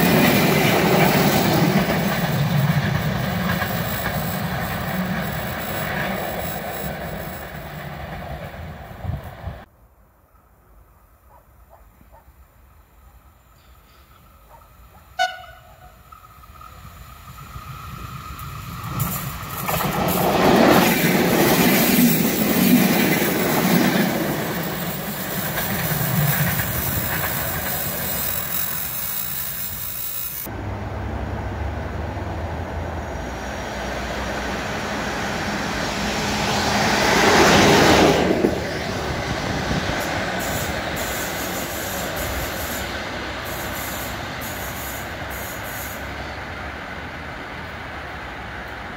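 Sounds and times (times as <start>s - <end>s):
train wheels rumbling on rails: 0.0s - 9.7s, 15.2s - 48.9s
train horn blast: 15.2s - 16.0s.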